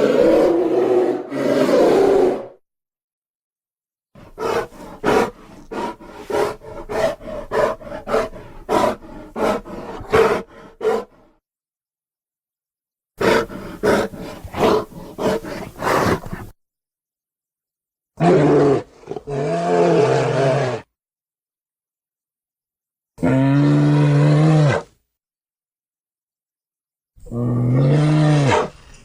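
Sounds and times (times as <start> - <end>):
creature roars: 0.0 - 2.6, 18.2 - 20.9, 23.2 - 24.9, 27.2 - 28.9.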